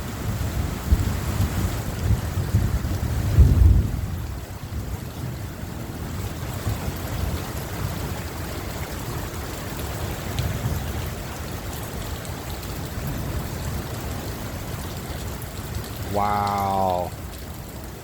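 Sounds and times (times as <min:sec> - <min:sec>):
heavy rain falling: 0:00.0 - 0:18.0
running water: 0:07.4 - 0:18.0.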